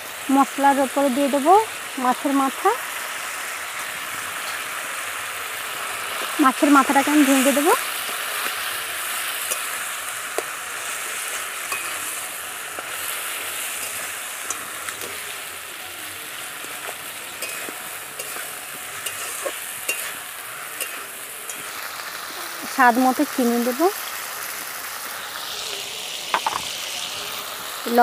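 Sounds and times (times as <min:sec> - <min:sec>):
fish sizzling in a pan: 0:00.0 - 0:28.0
metal spatula scraping a pan: 0:07.9 - 0:15.6, 0:16.2 - 0:22.3.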